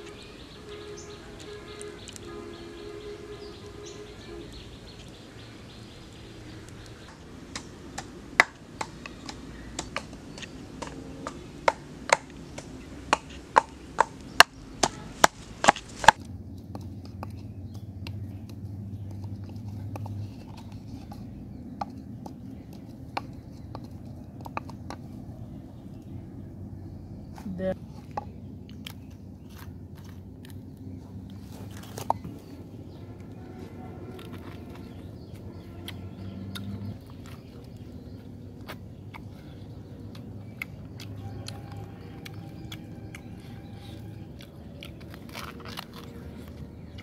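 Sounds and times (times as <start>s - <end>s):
faint bird or insect calls: 0.0s - 8.2s.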